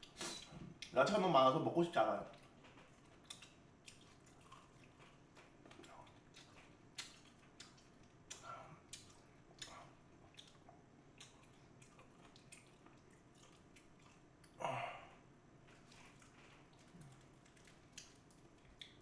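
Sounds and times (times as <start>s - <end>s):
person chewing with mouth clicks: 2.3s - 14.6s, 15.7s - 19.0s.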